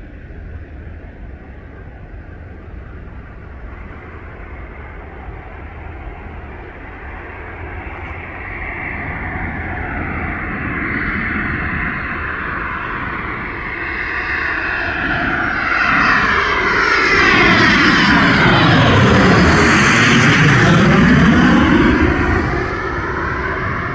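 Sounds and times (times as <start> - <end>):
jet engines and rushing air: 0.0 - 23.9
engine whine sliding down: 9.6 - 23.9.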